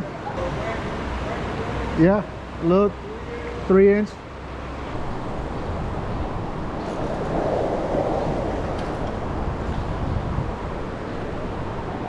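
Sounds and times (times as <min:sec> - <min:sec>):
flowing river water: 0:00.0 - 0:12.0
wind on microphone: 0:04.9 - 0:12.0.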